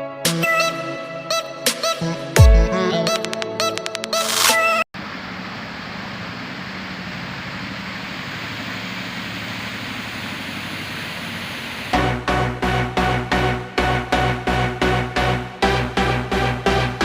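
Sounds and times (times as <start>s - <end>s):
electronic music with beat: 0.0s - 4.8s, 12.0s - 17.0s
water fountain jets splashing: 5.0s - 12.0s.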